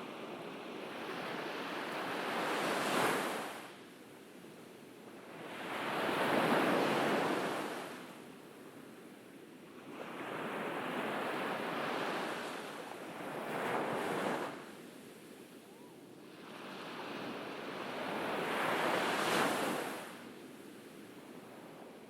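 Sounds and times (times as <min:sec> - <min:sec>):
ocean waves breaking on beach: 0:00.0 - 0:03.8, 0:15.9 - 0:22.0.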